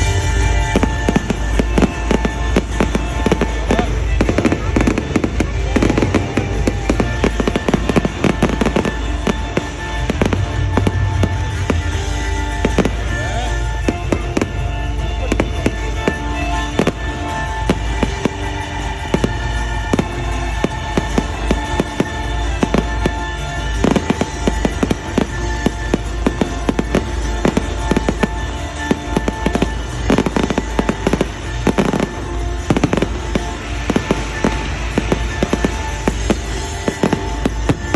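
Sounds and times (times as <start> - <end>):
fireworks bangs and crackles: 0.0 - 37.9
music with sustained tones: 0.0 - 37.9.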